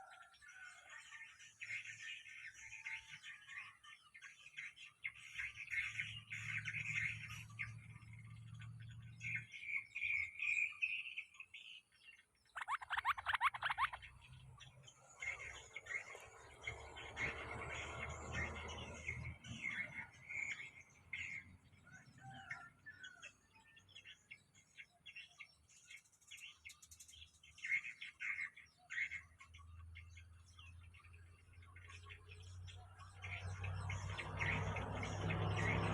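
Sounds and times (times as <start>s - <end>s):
bulbuls chirping: 3.5s - 21.4s.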